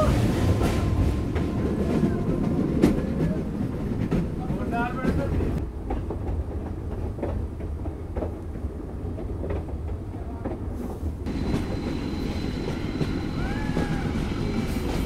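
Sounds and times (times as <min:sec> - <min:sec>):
wheels clacking over rail joints: 0:00.0 - 0:10.6
train rumbling: 0:00.0 - 0:15.0.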